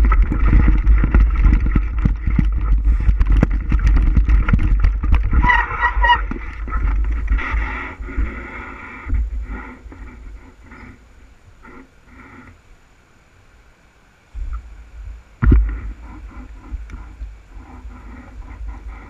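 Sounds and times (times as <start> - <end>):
bike rattles and knocks: 0.0 - 11.0, 15.4 - 19.0
wind rumbling on microphone: 0.0 - 13.0, 14.3 - 19.0.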